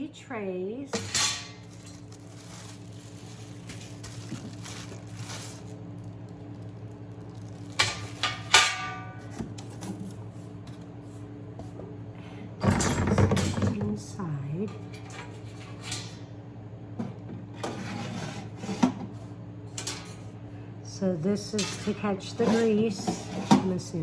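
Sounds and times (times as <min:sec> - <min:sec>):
steady low hum: 0:00.0 - 0:17.6
metal trays clanking: 0:00.9 - 0:02.7.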